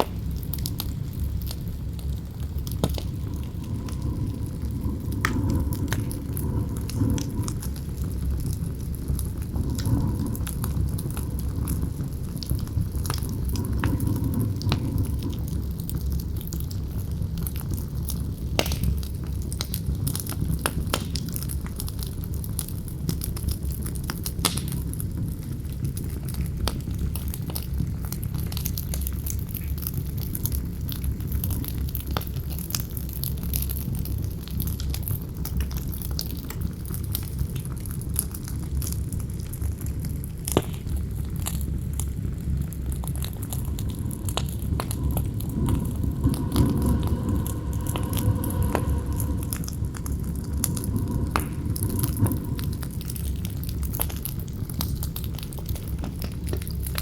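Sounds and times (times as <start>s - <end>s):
campfire crackling and popping: 0.0s - 57.0s
wind rushing: 2.8s - 8.1s, 42.9s - 54.0s.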